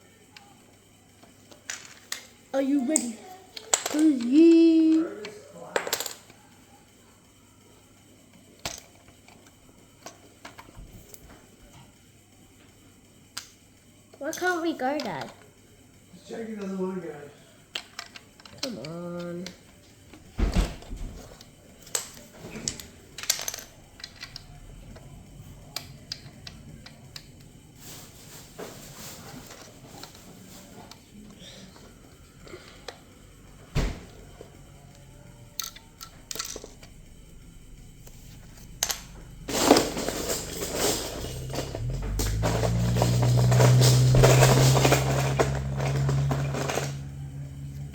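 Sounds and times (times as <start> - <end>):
plastic bricks clicking: 17.7 - 19.7, 21.3 - 24.6, 35.6 - 37.1.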